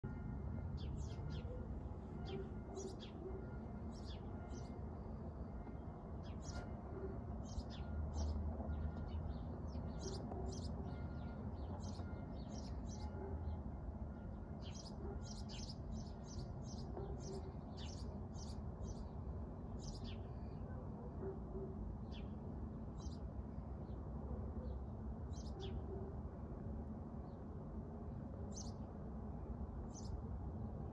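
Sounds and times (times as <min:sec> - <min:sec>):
small birds chirping: 0:14.6 - 0:19.2, 0:19.8 - 0:20.6.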